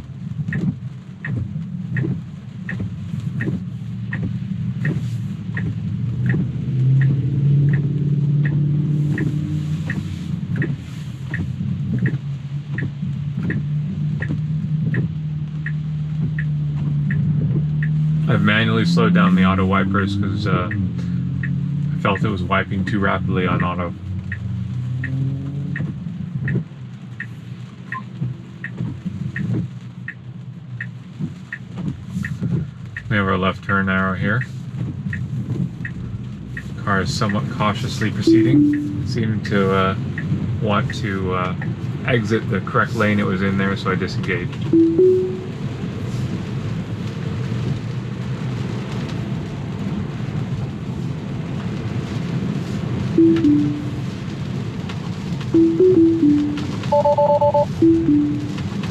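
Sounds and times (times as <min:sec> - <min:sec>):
car cabin and road noise: 0:00.0 - 0:58.9
rain: 0:00.0 - 0:58.9
turn signal ticking: 0:00.0 - 0:58.9
falling two-note chime: 0:38.3 - 0:39.1, 0:44.8 - 0:45.5, 0:53.2 - 0:54.0, 0:55.6 - 0:58.6
two-note chime: 0:38.3 - 0:39.2, 0:44.8 - 0:45.5, 0:53.2 - 0:54.0, 0:55.6 - 0:58.6.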